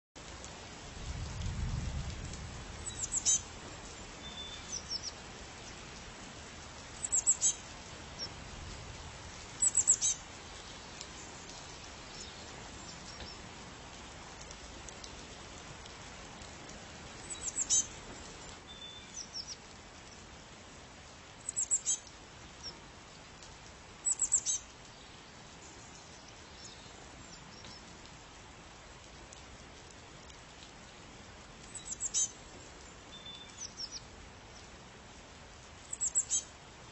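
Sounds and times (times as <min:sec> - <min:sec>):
steady background hiss: 0:00.2 - 0:36.9
songbird chirping: 0:02.8 - 0:03.5, 0:04.2 - 0:05.9, 0:07.0 - 0:08.3, 0:09.6 - 0:13.4, 0:17.2 - 0:18.0, 0:18.6 - 0:20.3, 0:21.4 - 0:22.8, 0:24.0 - 0:27.9, 0:31.6 - 0:32.4, 0:33.1 - 0:34.7, 0:35.8 - 0:36.5.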